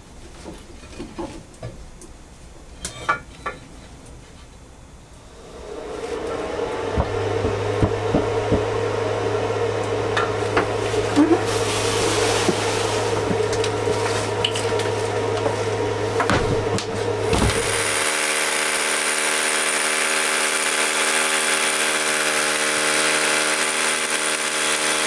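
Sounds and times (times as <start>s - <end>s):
small motor humming: 5.3s - 14.8s, 15.7s - 25.0s.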